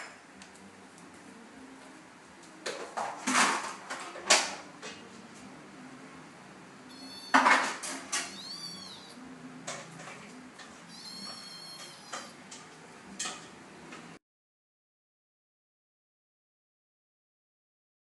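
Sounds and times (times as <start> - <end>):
cat meowing: 6.9 - 7.6, 8.2 - 9.2, 10.9 - 12.4.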